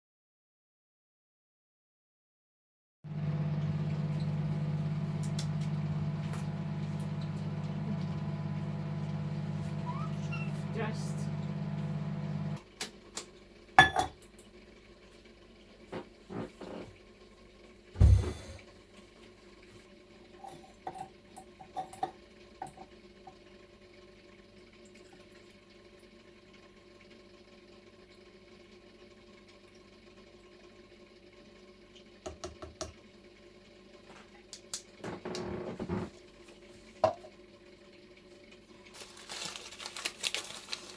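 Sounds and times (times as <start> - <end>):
faint steady hum: 3.1 - 12.6
low mechanical hum: 3.1 - 21.6, 33.0 - 40.9.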